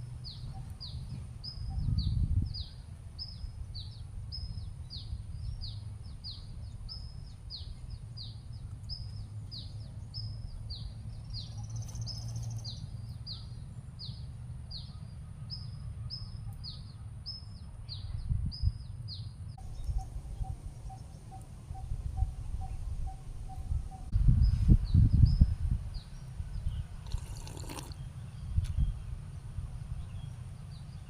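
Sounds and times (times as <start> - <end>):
soft pulsing bird call: 19.6 - 24.1.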